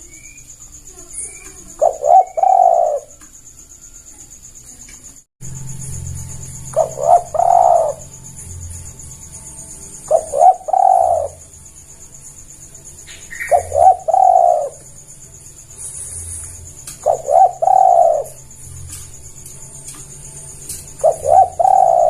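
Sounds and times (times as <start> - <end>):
dove cooing: 1.2 - 3.2, 6.6 - 8.2, 9.9 - 11.6, 13.0 - 15.0, 15.8 - 19.1, 20.6 - 22.0.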